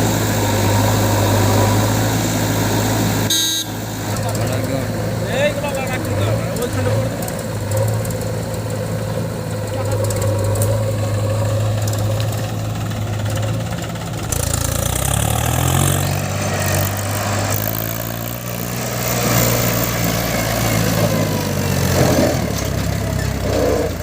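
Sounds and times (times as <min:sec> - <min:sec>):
diesel engines idling: 0:00.0 - 0:24.0.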